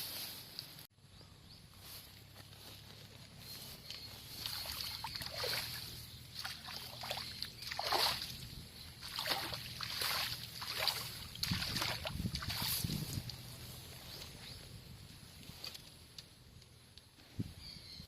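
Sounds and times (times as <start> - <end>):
footsteps wading through water: 3.6 - 13.3.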